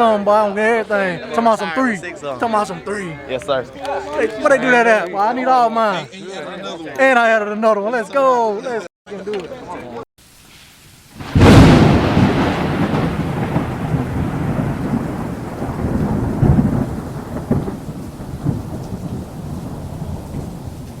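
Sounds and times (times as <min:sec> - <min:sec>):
thunder crack and rumble: 0:11.2 - 0:21.0.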